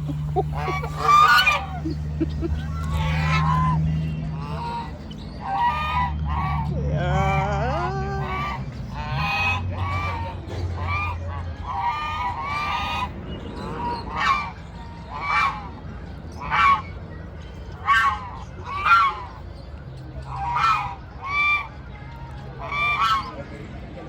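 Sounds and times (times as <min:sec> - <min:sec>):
waterfowl calling: 0:00.0 - 0:07.5, 0:08.2 - 0:17.0, 0:20.2 - 0:21.8, 0:22.6 - 0:23.4.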